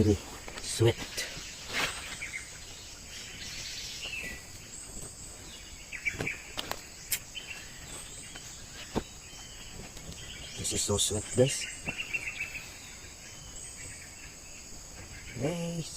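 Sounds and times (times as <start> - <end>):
bird chirp: 0.0 - 15.9
high-pitched insect drone: 10.7 - 15.9.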